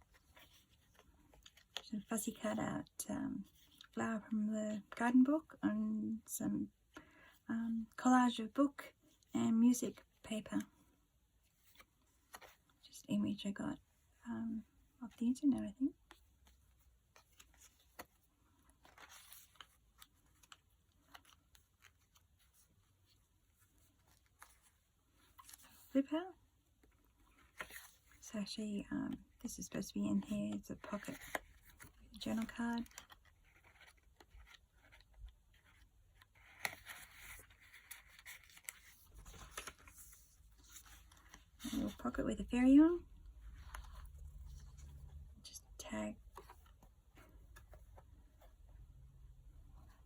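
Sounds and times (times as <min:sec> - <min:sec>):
paper rustling: 0:16.0 - 0:26.0, 0:26.8 - 0:28.2, 0:30.2 - 0:42.2, 0:43.2 - 0:45.3
pages being turned: 0:16.4 - 0:22.7, 0:26.8 - 0:28.2, 0:30.2 - 0:42.2, 0:43.4 - 0:45.2
paper rustling and scraping: 0:30.2 - 0:42.2.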